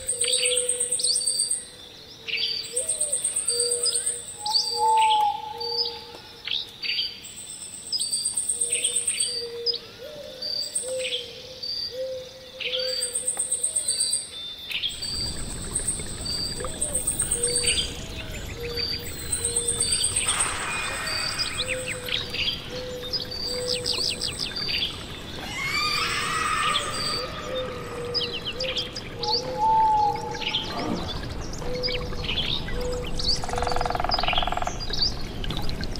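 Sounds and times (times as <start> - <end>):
birds chirping: 0.0 - 35.9
faint steady hiss: 0.0 - 35.9
insect trill: 14.9 - 28.7, 33.2 - 34.8
low whistled calls: 14.9 - 34.7
flowing water: 14.9 - 35.9
high insect trill: 19.0 - 22.9.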